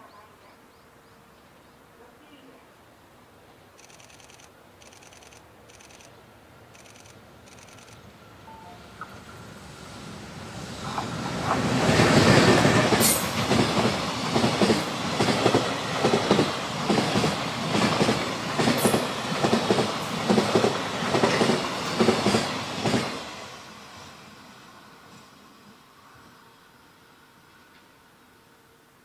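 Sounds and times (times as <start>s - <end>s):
freight train rumbling past: 8.1s - 28.3s.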